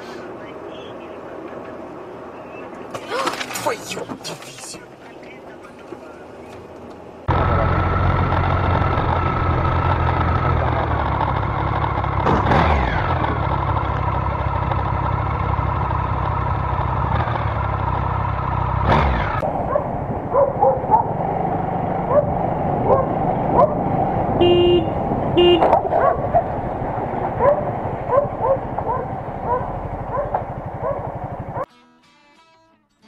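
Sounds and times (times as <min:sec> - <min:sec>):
vehicle engine humming: 0:00.0 - 0:31.7.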